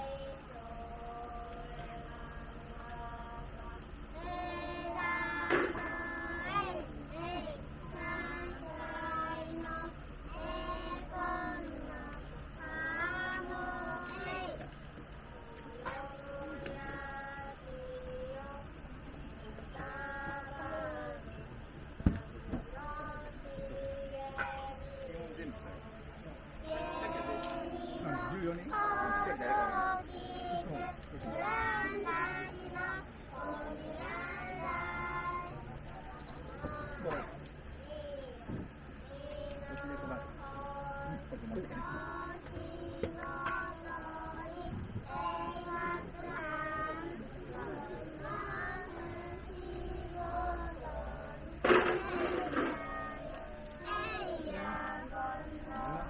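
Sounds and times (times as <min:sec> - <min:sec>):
children singing: 0:00.0 - 0:14.7, 0:26.6 - 0:35.7, 0:39.5 - 0:56.0
voices chanting a boat song: 0:00.0 - 0:37.5, 0:38.9 - 0:56.0.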